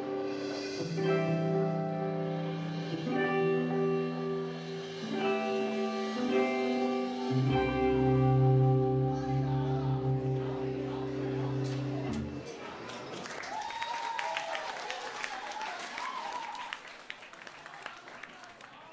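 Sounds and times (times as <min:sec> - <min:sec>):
ringing guitar chords: 0:00.0 - 0:12.5
deep bass note: 0:07.3 - 0:12.4.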